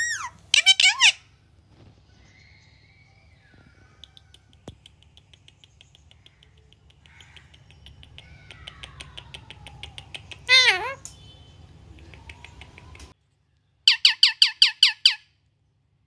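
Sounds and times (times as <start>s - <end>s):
faint quick clicks: 11.9s - 13.2s.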